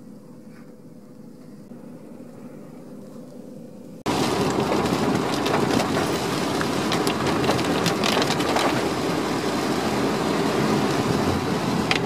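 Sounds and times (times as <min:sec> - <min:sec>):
car road noise: 0:04.1 - 0:12.0
rain on car roof: 0:04.1 - 0:12.0.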